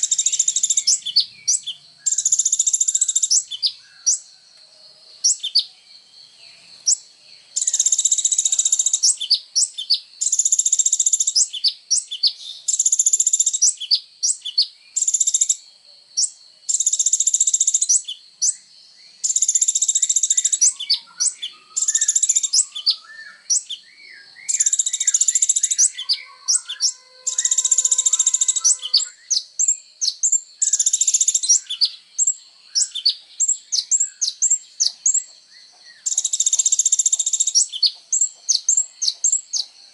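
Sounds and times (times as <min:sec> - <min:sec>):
soft bird warbling: 0:25.8 - 0:29.2.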